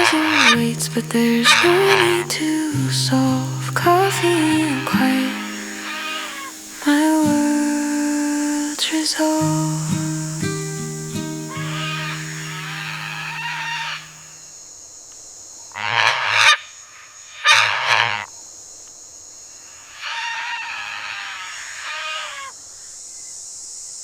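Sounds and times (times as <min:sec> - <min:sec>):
steady high-pitched hiss: 0:00.0 - 0:15.7, 0:18.3 - 0:24.0
birds warbling: 0:03.1 - 0:14.3
loud harsh bird calls: 0:04.4 - 0:07.5, 0:09.8 - 0:14.3.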